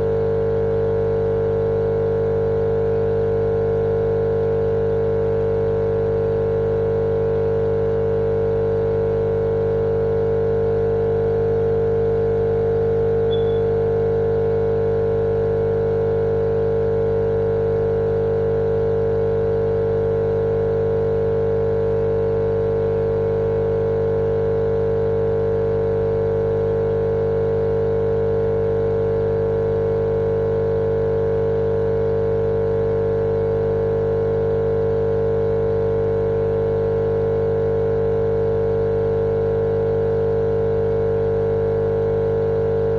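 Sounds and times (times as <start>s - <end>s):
steady hum with mid-pitched tone: 0.0s - 19.7s, 22.0s - 35.0s.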